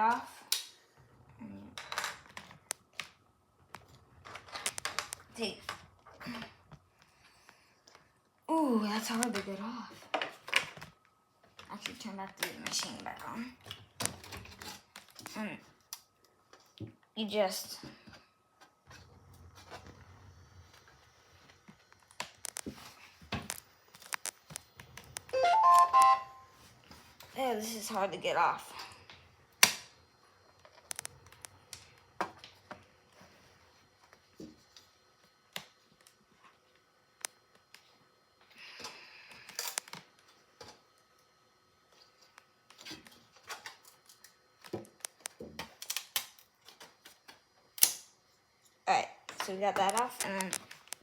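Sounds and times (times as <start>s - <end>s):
plastic parts clicking and scraping: 1.8s - 6.6s.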